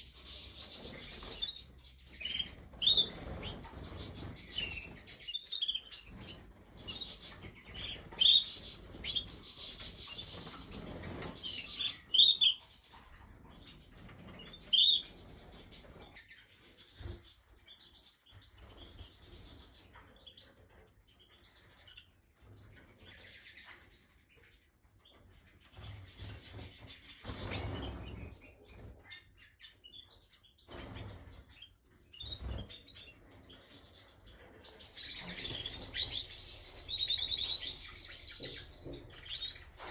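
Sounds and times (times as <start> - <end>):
canaries chirping: 0.0 - 39.9
wings flapping: 25.8 - 28.3.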